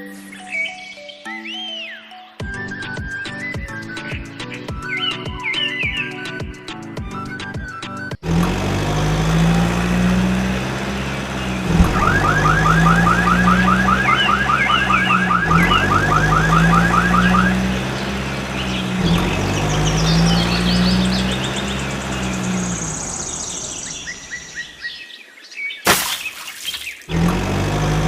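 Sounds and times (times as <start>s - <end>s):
low motor drone: 8.2s - 24.8s
rapid rising chirps: 11.2s - 24.8s.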